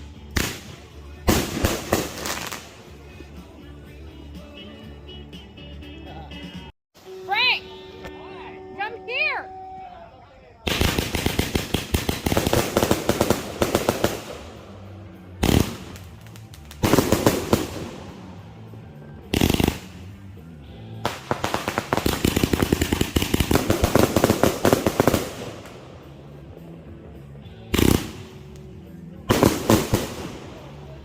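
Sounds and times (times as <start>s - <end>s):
firework cake shots and crackling: 0.0s - 3.1s, 10.6s - 18.4s, 19.3s - 20.2s, 21.0s - 25.8s, 27.7s - 28.6s, 29.2s - 31.0s.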